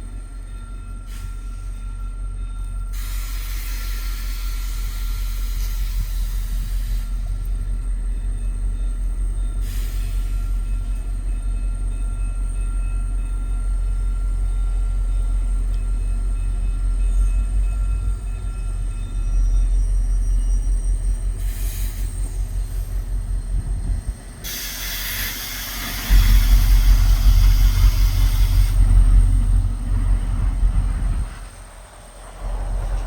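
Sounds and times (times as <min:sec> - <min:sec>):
passenger train rumble: 0:00.0 - 0:33.0
burst of hiss: 0:03.0 - 0:07.2, 0:09.6 - 0:10.6, 0:24.4 - 0:28.9.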